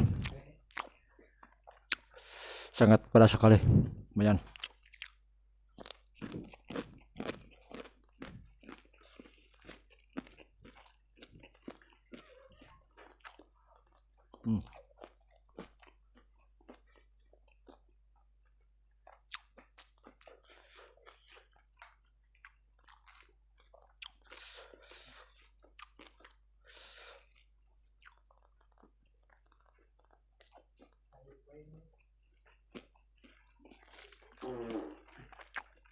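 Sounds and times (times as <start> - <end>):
mouth noises: 0.0 - 0.5, 1.9 - 4.5, 34.4 - 35.2
chewing and crunching: 0.0 - 2.3, 4.4 - 35.9.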